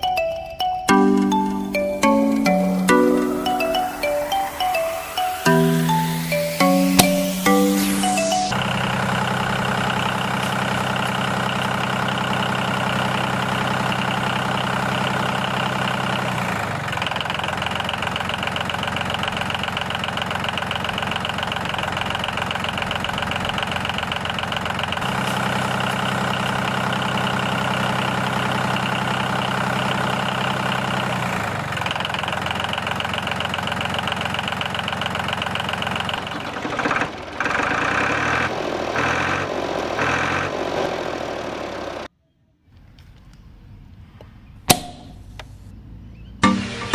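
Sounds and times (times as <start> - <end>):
tractor engine idling: 0.9 - 42.1.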